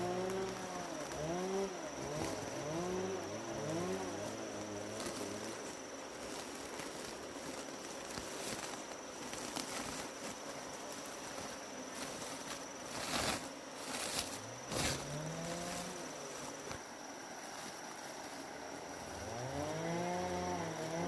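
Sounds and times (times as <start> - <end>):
high-pitched insect drone: 0.0 - 21.0
outdoor background noise: 0.0 - 21.0
distant motor rising in pitch: 14.7 - 16.2, 19.2 - 21.0.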